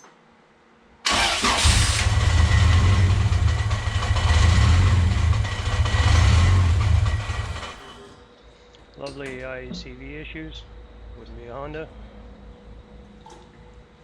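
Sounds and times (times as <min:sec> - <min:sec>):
car engine cranking: 0:01.1 - 0:08.1
car engine idling unevenly: 0:01.3 - 0:08.1.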